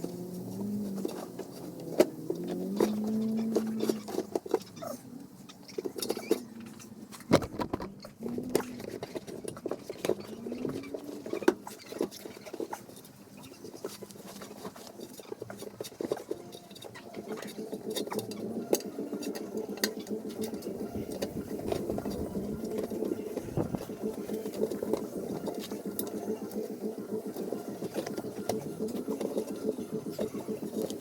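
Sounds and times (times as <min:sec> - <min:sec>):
steady low hum: 0:16.3 - 0:31.0.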